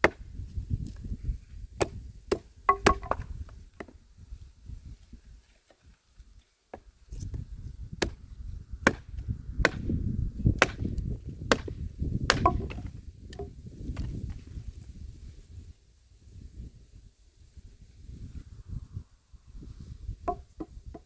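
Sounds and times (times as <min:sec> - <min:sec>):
axe chopping wood: 0:00.0 - 0:00.4, 0:01.8 - 0:04.0, 0:08.0 - 0:14.2.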